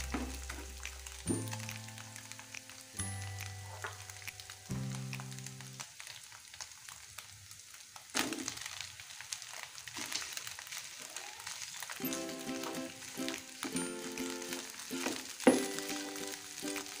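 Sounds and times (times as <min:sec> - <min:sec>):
rice thumping into pan: 0:00.0 - 0:01.8, 0:08.1 - 0:08.8, 0:14.6 - 0:16.0
food sizzling in a pan: 0:00.0 - 0:17.0.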